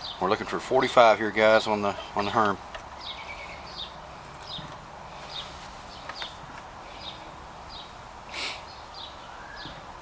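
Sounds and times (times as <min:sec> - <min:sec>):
steady background hiss: 0:00.0 - 0:10.0
small bird chirping: 0:03.0 - 0:06.4, 0:08.6 - 0:09.9.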